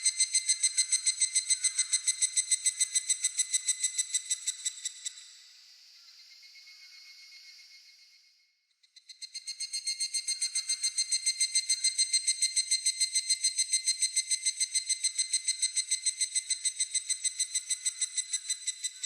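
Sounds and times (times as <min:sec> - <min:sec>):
cicada calling: 0:00.0 - 0:05.2, 0:09.2 - 0:19.0.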